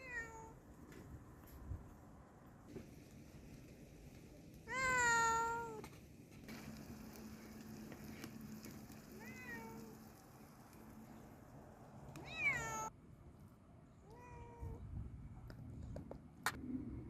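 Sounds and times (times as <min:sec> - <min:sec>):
cat meowing: 0:00.0 - 0:00.6, 0:04.7 - 0:05.8, 0:09.2 - 0:09.9, 0:12.2 - 0:12.9, 0:14.0 - 0:14.8.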